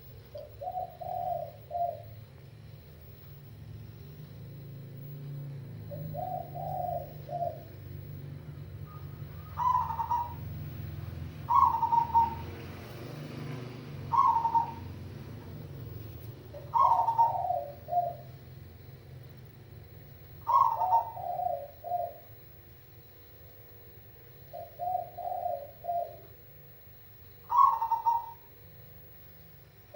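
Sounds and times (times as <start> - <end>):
dove cooing: 0.0 - 2.3, 3.8 - 19.2, 20.2 - 22.5, 24.4 - 26.6, 27.4 - 28.7.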